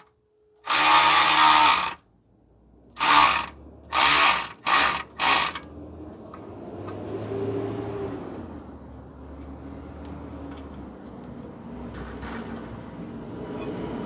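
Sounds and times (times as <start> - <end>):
power tool trigger bursts: 0.6 - 2.0, 3.0 - 5.7.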